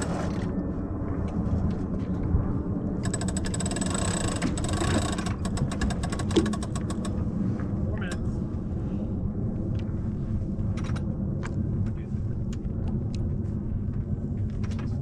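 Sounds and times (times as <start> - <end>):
winch ratcheting clicks: 3.0 - 7.2.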